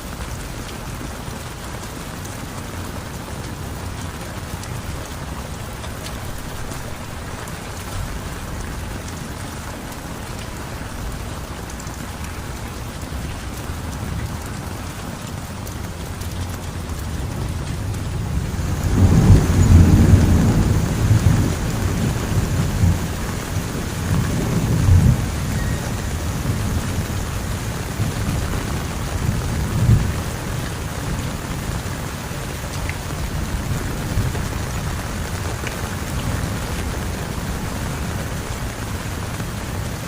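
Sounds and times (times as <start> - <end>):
heavy rain: 0.0 - 40.0
thunder rumbling: 10.9 - 32.2.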